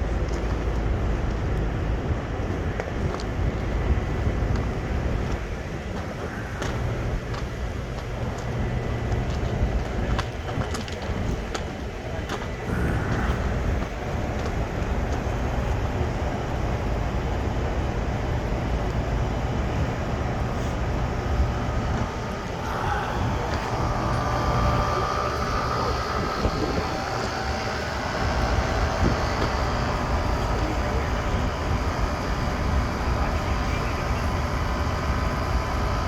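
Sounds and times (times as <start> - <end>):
engine whine: 0.0 - 36.0
heavy engine rumbling: 0.0 - 36.0.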